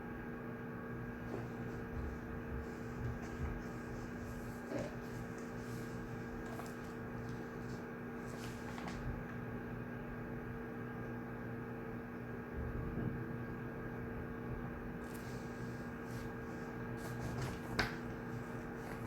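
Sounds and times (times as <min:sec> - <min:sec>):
low electrical hum: 0:00.0 - 0:19.0
faint rustles and ticks: 0:01.2 - 0:09.4.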